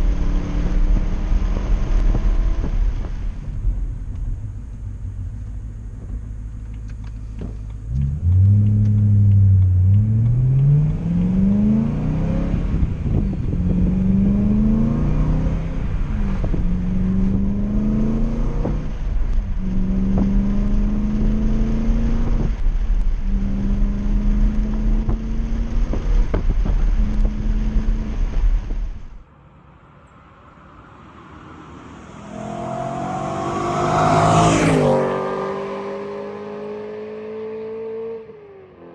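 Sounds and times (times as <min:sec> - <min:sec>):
car engine accelerating: 0:00.0 - 0:38.9
wind noise on microphone: 0:11.5 - 0:29.2
car passing by: 0:29.3 - 0:38.2.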